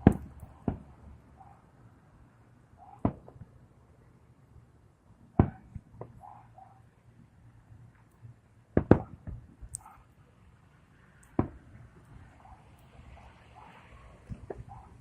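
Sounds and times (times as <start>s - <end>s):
small firework pops: 0.0s - 0.9s, 8.8s - 9.9s, 11.2s - 11.7s.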